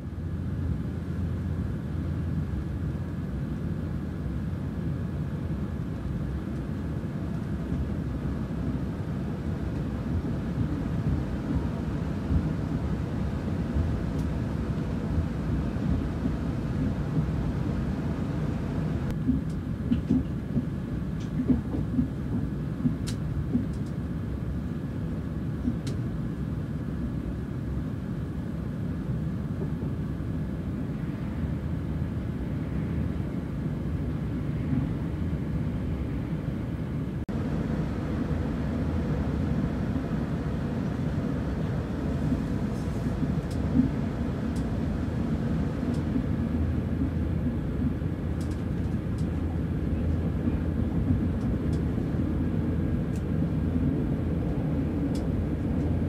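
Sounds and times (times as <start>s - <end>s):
train wheels rumbling on track: 0.0s - 27.2s, 29.0s - 56.0s.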